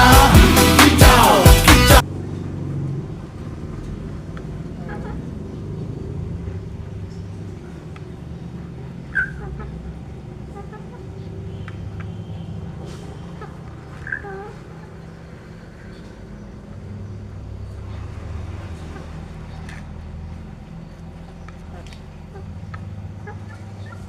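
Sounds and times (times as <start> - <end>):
pop music: 0.0 - 2.1
chicken calls: 4.4 - 24.0.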